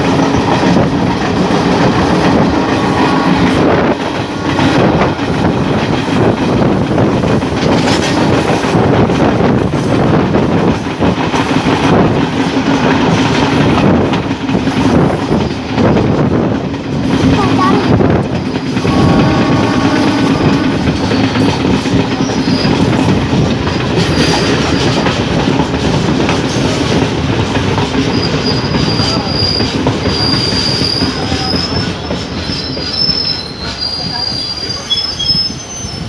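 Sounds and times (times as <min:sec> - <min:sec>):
train wheels rumbling clickety-clack: 0:00.0 - 0:36.0
metallic wheel squeal: 0:22.2 - 0:22.9, 0:28.1 - 0:36.0.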